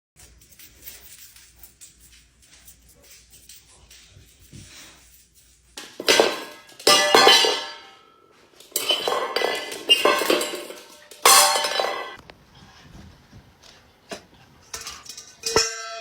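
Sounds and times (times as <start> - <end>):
metal bowl clattering: 5.8 - 12.2, 14.6 - 16.0.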